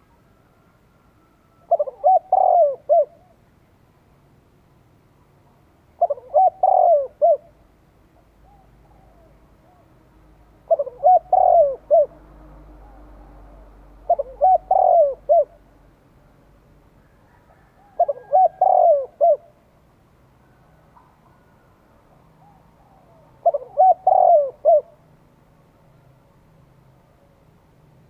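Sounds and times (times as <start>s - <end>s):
dove cooing: 1.2s - 3.4s, 6.0s - 7.6s, 8.4s - 10.0s, 10.6s - 15.7s, 17.1s - 19.6s, 22.3s - 25.0s.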